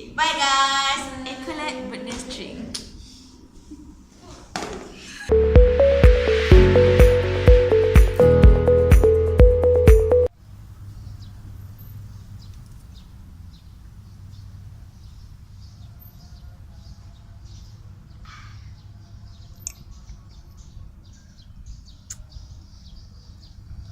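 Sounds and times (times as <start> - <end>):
small birds chirping: 10.9 - 23.9.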